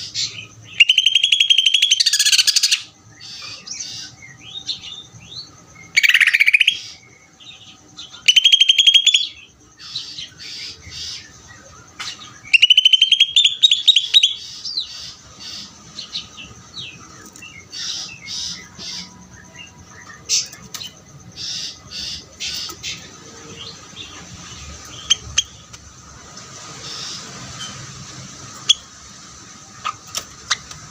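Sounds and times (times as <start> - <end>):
bird singing rattling trills: 0.0 - 30.9
bird chirps and whistles: 0.7 - 3.6, 5.9 - 7.0, 8.2 - 9.5, 12.4 - 14.4.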